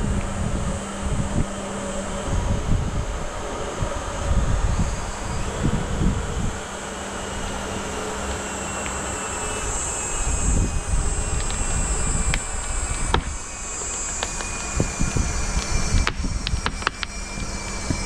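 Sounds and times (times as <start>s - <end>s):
sharp clicks: 11.3s - 18.0s.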